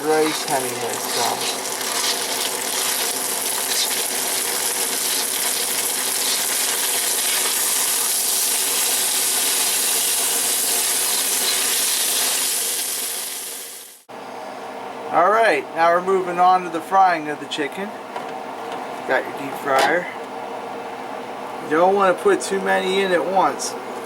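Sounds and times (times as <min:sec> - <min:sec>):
rice sizzling in a pan: 0:00.0 - 0:14.1.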